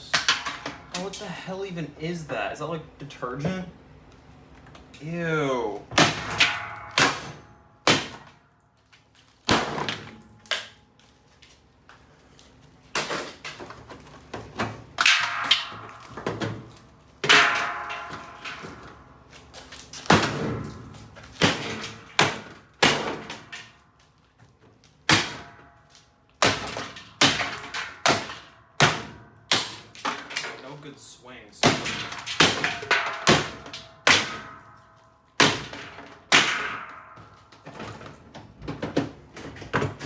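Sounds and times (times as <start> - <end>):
heavy blows clanging on sheet metal: 5.9 - 8.4, 15.0 - 19.2, 31.6 - 38.0.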